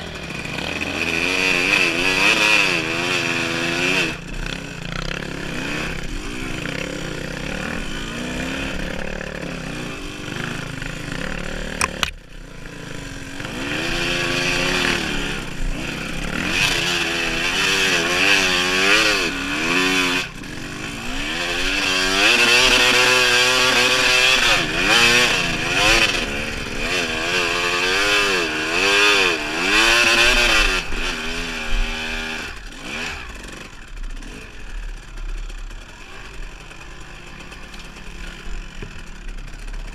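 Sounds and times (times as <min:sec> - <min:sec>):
dirt bike engine revving: 0:00.0 - 0:39.9
sharp click: 0:11.8 - 0:12.2.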